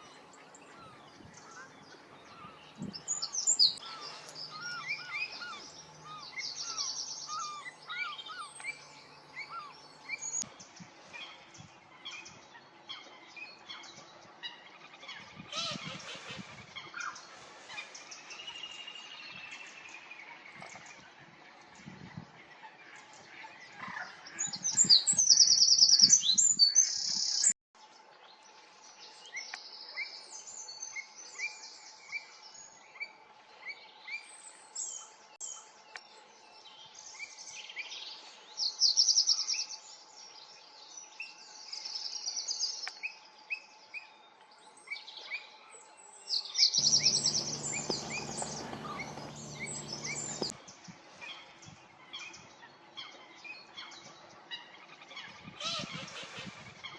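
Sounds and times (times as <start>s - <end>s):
birds chirping: 0.0s - 10.7s, 46.8s - 50.6s
birds singing trilled songs: 0.0s - 15.8s, 46.6s - 50.6s
faint steady hum: 46.8s - 50.5s
rumbling hum: 46.8s - 50.5s.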